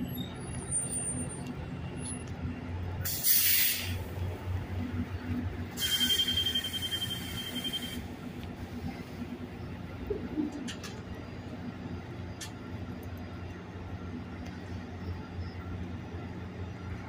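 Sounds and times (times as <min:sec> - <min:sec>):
train idling with low hum: 0:00.0 - 0:17.0
compressed air hissing: 0:03.1 - 0:04.0
thin steady whistle: 0:05.8 - 0:08.0.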